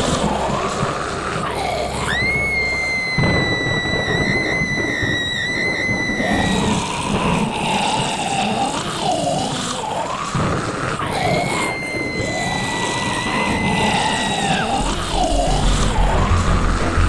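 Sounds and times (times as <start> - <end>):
steady noisy background: 14.4 - 17.0.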